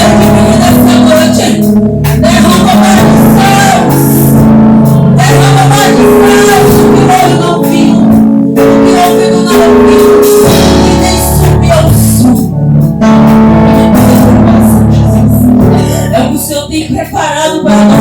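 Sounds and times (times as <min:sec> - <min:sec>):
people singing: 0:00.0 - 0:04.4, 0:05.0 - 0:12.4
worship band playing: 0:00.0 - 0:18.0.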